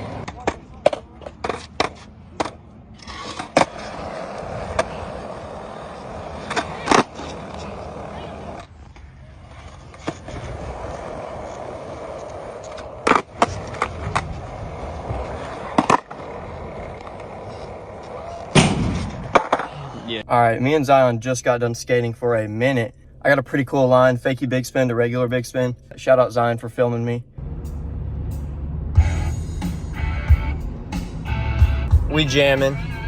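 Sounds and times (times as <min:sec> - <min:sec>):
skateboard clacks popping and landing: 0:00.0 - 0:05.4, 0:06.2 - 0:09.0, 0:09.6 - 0:19.9
skateboard wheels rolling: 0:00.0 - 0:20.2.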